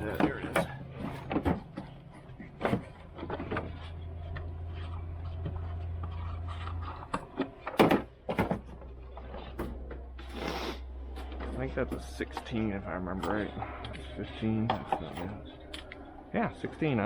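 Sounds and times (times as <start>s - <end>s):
steady low hum: 0.0s - 17.0s
hand tools clinking: 11.1s - 16.0s.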